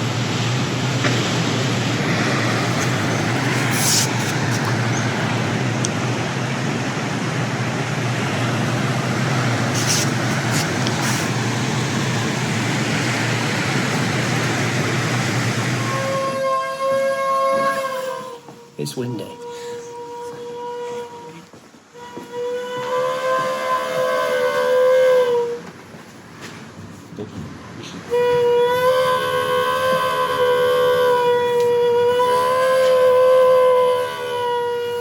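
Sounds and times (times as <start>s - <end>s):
storm wind buffeting microphone: 0.0s - 16.5s.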